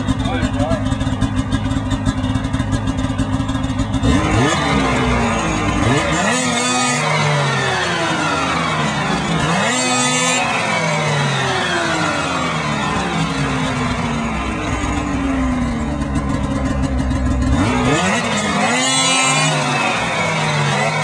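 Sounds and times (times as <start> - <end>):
snowmobile engine idling and revving: 0.0 - 21.0.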